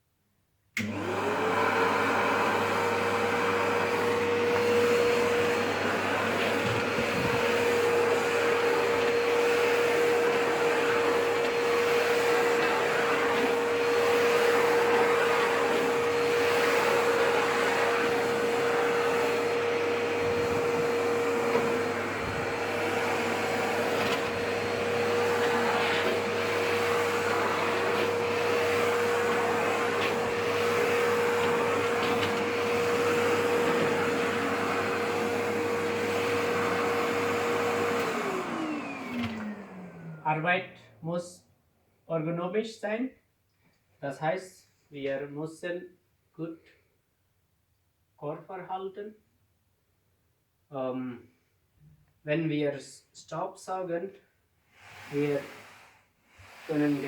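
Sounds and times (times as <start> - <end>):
vacuum cleaner running: 0.8 - 41.0, 54.7 - 57.0.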